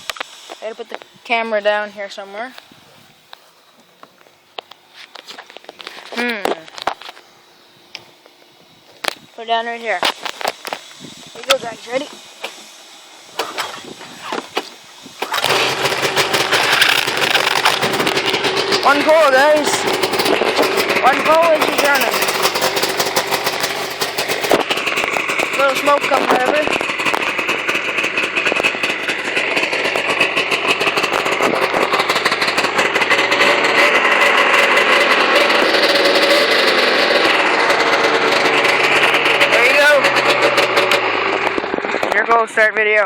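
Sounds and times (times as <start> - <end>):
snowmobile engine running: 10.4 - 43.0.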